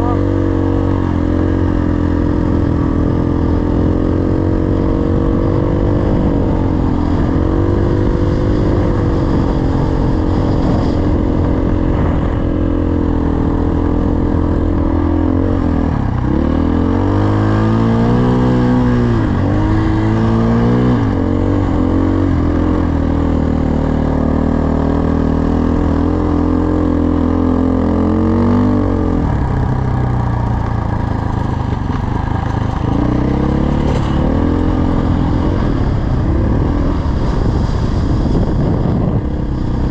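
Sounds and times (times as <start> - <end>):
dirt bike engine revving: 24.1 - 37.5.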